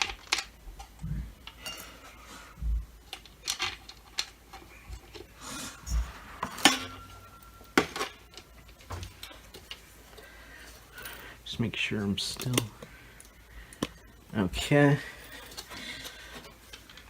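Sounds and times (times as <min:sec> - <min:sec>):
plastic parts clicking and knocking: 0:00.0 - 0:01.6, 0:02.6 - 0:05.3.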